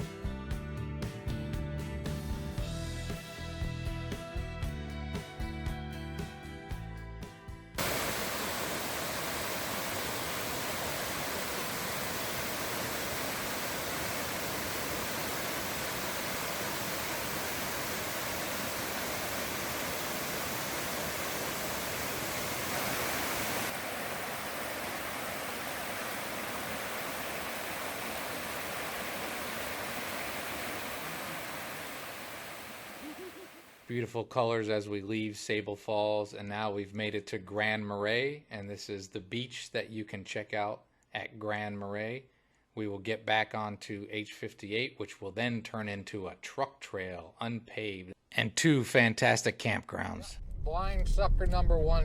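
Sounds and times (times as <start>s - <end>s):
waterfall rushing: 7.8s - 33.9s.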